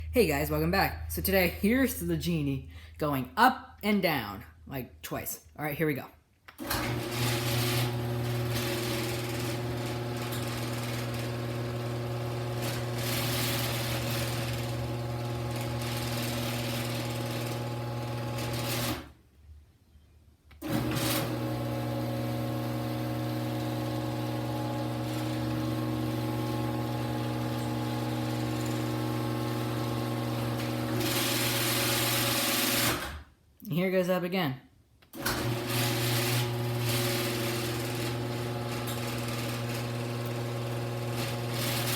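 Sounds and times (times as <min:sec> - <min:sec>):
garage door opener motor humming: 0:06.6 - 0:19.1, 0:20.6 - 0:33.2, 0:35.2 - 0:41.9.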